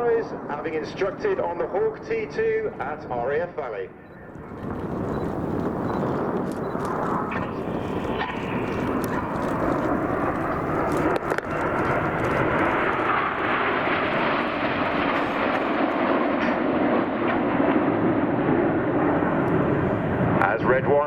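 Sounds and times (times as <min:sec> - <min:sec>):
jets flying past: 0:00.0 - 0:21.0.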